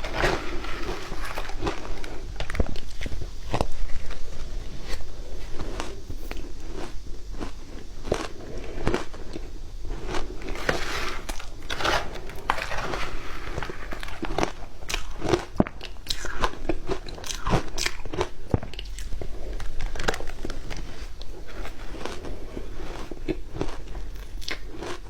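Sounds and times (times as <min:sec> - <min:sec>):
ice being chewed: 0:00.0 - 0:25.0.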